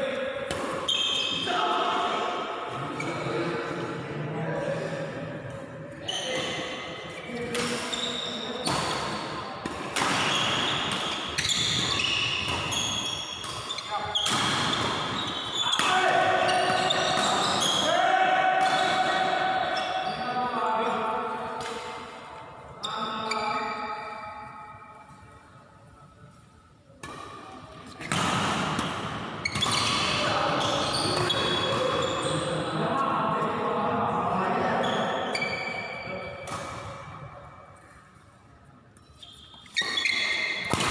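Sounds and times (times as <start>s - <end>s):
players' voices: 0.0s - 24.5s, 25.1s - 37.4s
shoes squeaking on court floor: 0.9s - 1.5s, 6.1s - 9.2s, 10.2s - 17.9s, 22.8s - 24.2s, 29.4s - 32.6s, 34.8s - 36.7s, 39.0s - 40.9s
racket striking shuttlecock: 39.7s - 40.9s.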